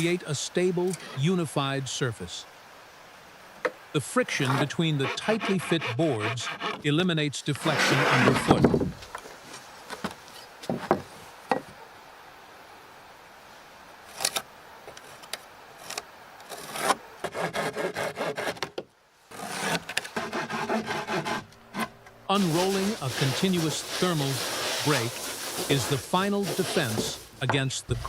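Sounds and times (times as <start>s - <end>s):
hand saw cutting wood: 4.3s - 6.9s, 7.6s - 8.7s, 16.6s - 18.7s, 19.3s - 27.5s.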